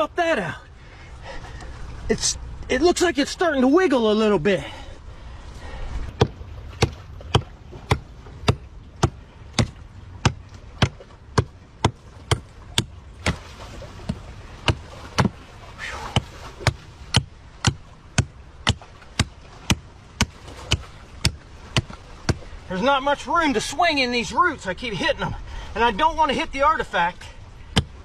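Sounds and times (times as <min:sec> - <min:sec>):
chopping tool striking root: 0:06.2 - 0:13.4, 0:14.1 - 0:15.4, 0:16.2 - 0:22.4.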